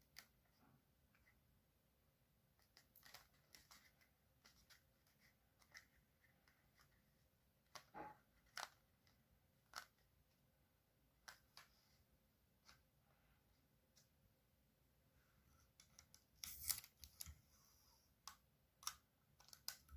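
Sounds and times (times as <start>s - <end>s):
paper rustling and creasing: 16.0s - 17.8s.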